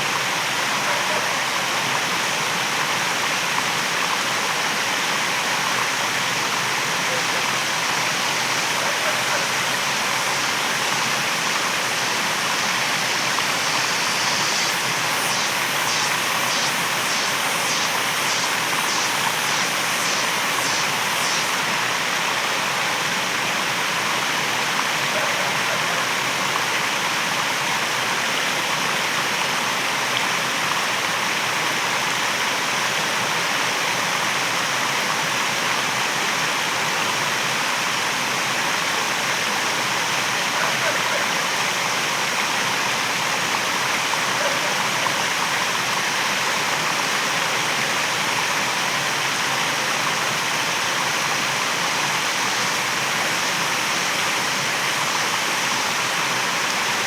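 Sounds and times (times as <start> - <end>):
waterfall rushing: 0.1 - 27.9
high-pitched pulsing: 8.1 - 21.7.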